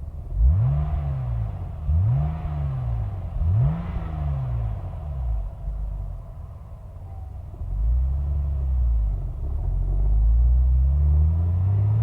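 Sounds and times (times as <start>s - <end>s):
car engine revving: 0.3s - 5.4s.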